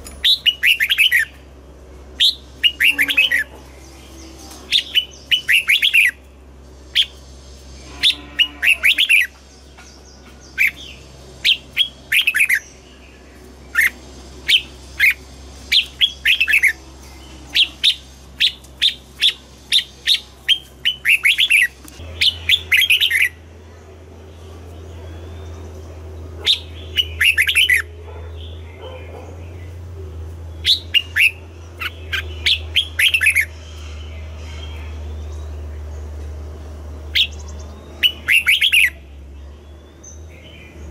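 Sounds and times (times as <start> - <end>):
bird singing rapid chirping notes: 0.0 - 40.9.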